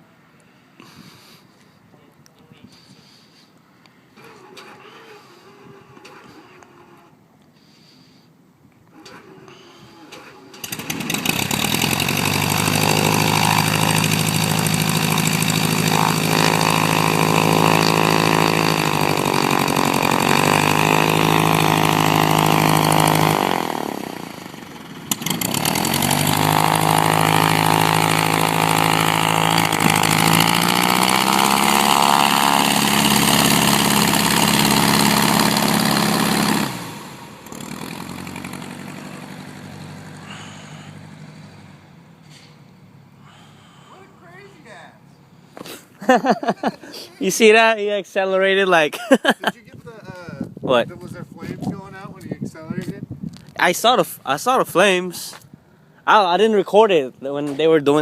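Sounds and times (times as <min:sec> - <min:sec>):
light aircraft engine running: 0:09.0 - 0:42.6.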